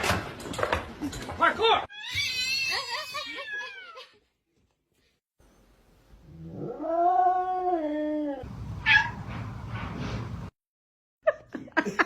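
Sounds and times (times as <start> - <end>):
cat yowling: 1.9 - 4.0.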